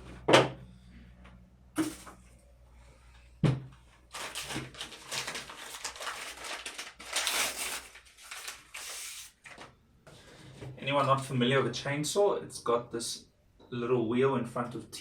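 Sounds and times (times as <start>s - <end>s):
packaging rustling: 4.0s - 9.7s.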